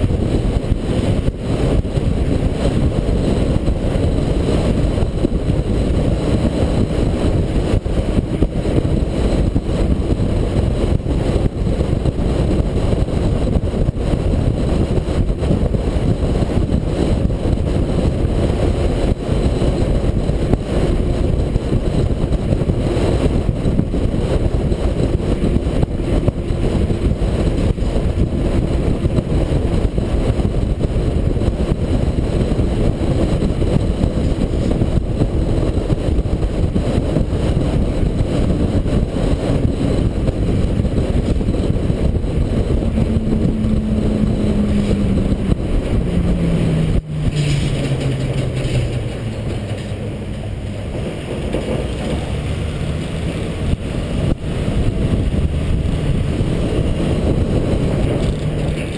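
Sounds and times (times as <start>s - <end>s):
diesel truck engine running: 0.0s - 58.9s.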